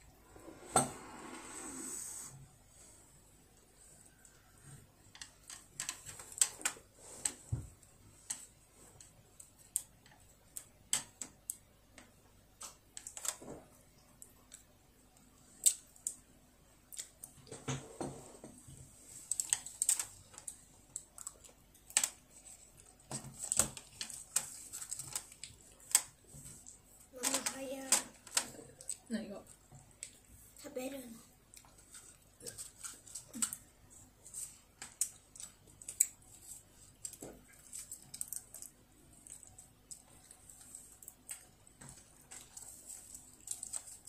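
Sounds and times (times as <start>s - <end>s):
child chewing and smacking lips: 3.4s - 17.6s, 18.2s - 27.1s, 28.2s - 30.6s, 31.2s - 44.0s.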